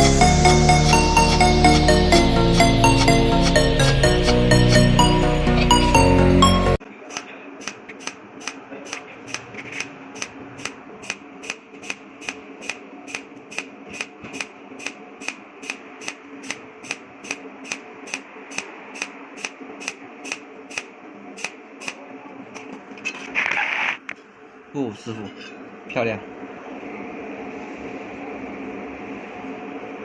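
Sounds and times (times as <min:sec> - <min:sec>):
steady low hum: 0:00.0 - 0:30.0
welding machine electric ticks: 0:07.2 - 0:22.0.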